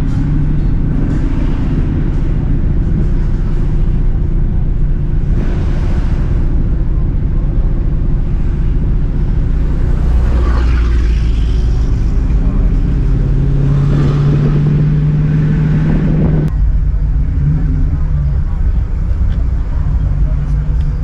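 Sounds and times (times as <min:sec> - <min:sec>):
car engine humming: 0:00.0 - 0:21.0.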